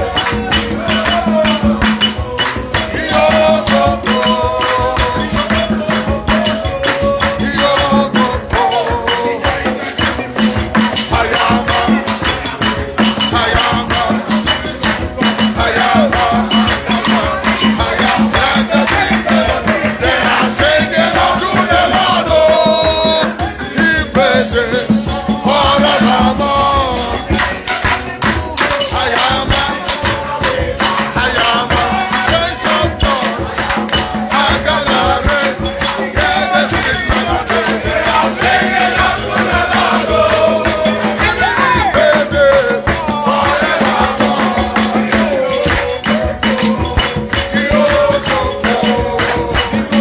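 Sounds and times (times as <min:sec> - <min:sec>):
dense percussion: 0:00.0 - 0:50.0
voices chanting and singing: 0:00.0 - 0:50.0.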